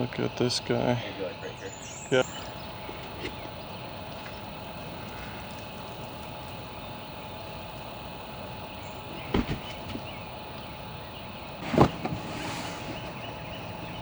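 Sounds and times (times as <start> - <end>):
background hum: 0.0 - 14.0
dull thuds: 9.1 - 10.4, 11.5 - 13.9.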